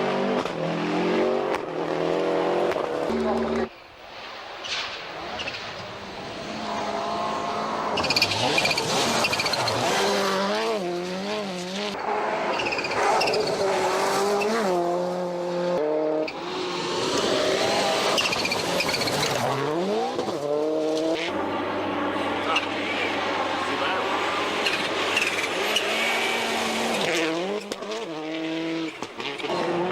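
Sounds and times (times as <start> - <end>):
car engine revving hard: 6.6 - 21.3, 22.4 - 29.9.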